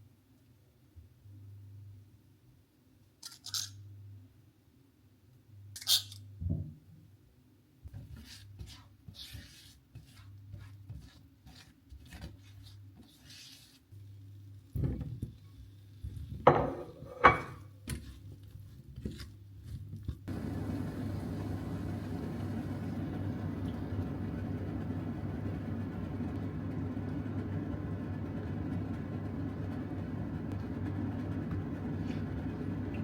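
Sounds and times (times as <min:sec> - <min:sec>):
dishes clattering: 0:16.5 - 0:17.6
steady noise: 0:20.3 - 0:27.0
low steady hum: 0:20.3 - 0:33.0.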